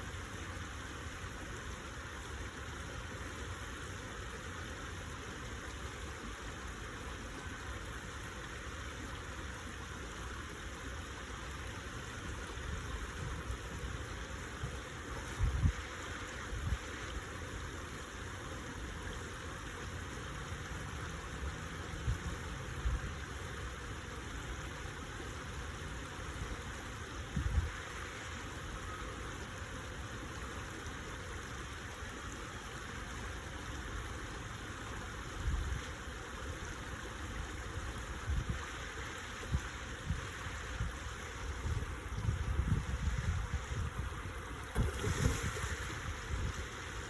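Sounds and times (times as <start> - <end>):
stream water rushing: 0.0 - 47.0
wind buffeting microphone: 14.6 - 15.8, 40.8 - 46.8.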